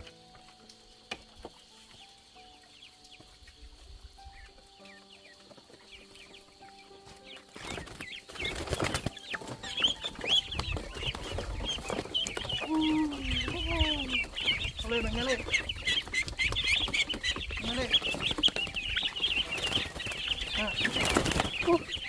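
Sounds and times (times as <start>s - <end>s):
chickens clucking: 0.0s - 22.0s
chicks peeping: 0.0s - 22.0s
faint chirps: 0.0s - 22.0s
soft background music: 0.0s - 22.0s
rustling: 5.3s - 22.0s.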